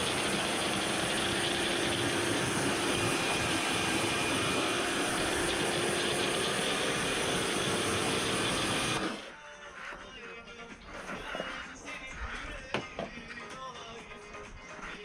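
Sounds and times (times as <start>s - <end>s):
pressure washer spraying water: 0.0s - 9.2s
faint motor hum: 0.0s - 9.3s.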